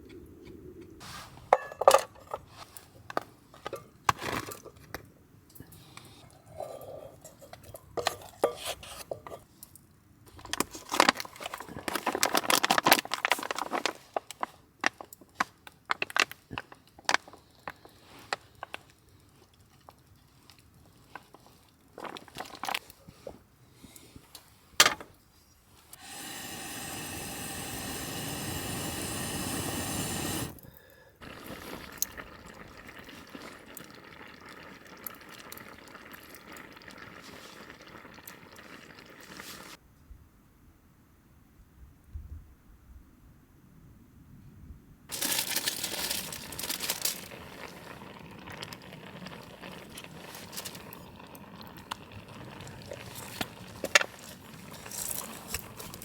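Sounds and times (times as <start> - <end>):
metal cookware clinking: 1.6 - 2.2
liquid pouring into vessel: 45.1 - 56.0.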